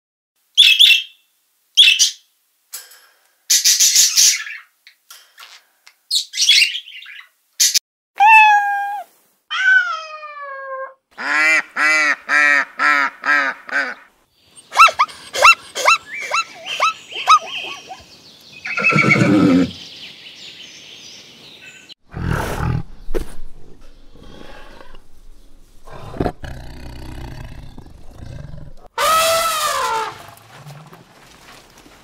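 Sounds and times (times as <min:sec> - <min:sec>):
kittens meowing: 0:08.2 - 0:11.0
macaws squawking: 0:14.6 - 0:18.1
zebra barking calls: 0:14.7 - 0:18.0.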